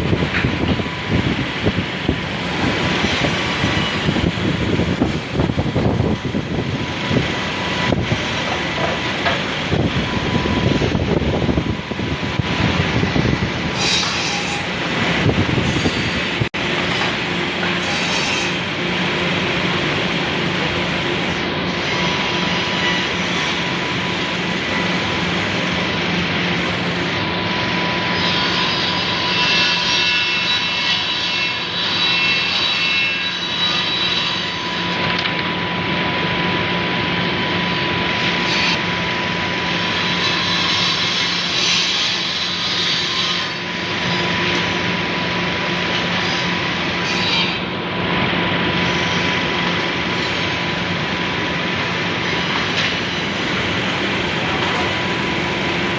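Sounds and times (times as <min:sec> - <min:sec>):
woodworking machine running: 0:00.0 - 0:55.9.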